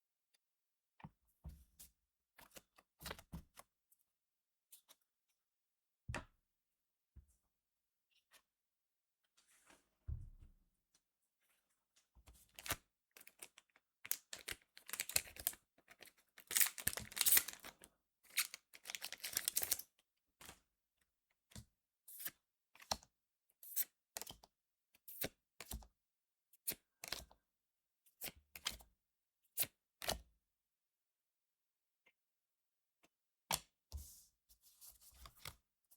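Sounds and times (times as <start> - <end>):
foil pack tearing and crinkling: 16.5 - 17.6.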